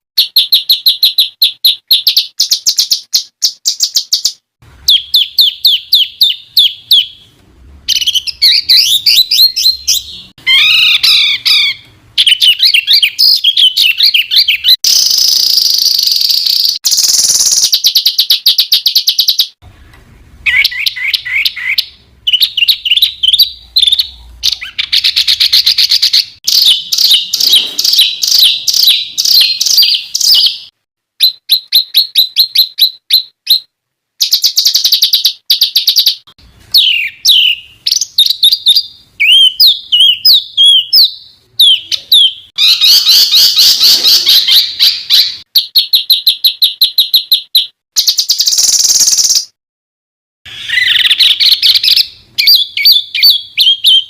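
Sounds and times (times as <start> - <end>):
harsh buzzy bird song: 0.2 - 19.6, 20.4 - 49.6, 50.5 - 54.0.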